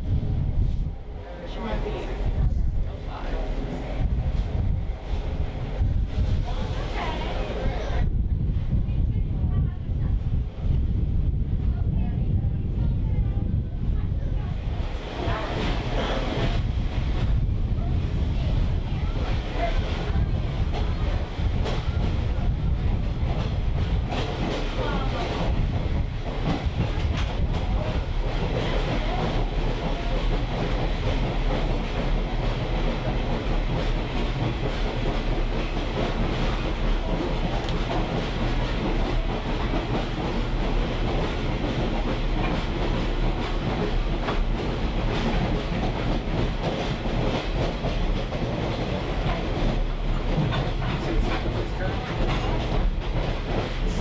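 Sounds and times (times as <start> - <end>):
train car rumbling: 0.0 - 54.0.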